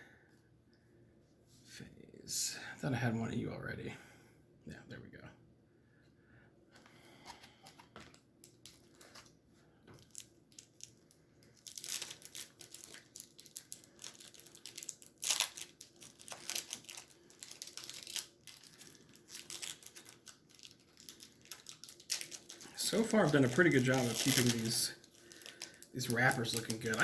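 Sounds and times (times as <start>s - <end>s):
wrapper crinkling and tearing: 8.1s - 9.4s, 10.0s - 27.0s.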